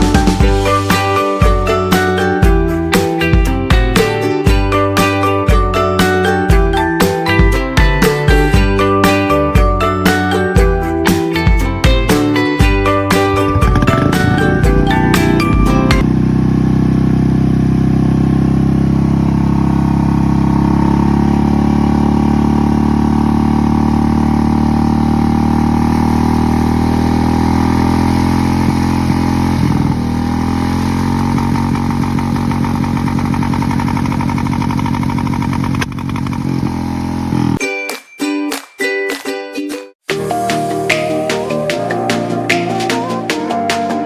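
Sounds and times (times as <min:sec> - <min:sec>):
motorcycle engine idling: 0:13.2 - 0:37.6.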